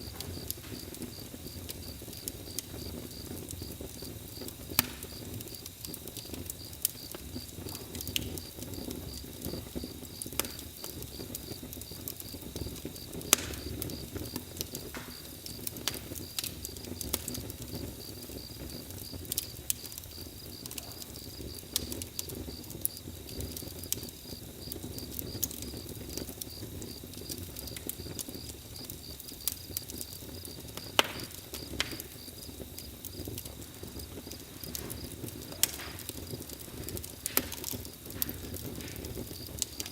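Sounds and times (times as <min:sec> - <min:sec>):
bonfire crackling and popping: 0:00.0 - 0:39.9
insect chirping: 0:17.7 - 0:35.4.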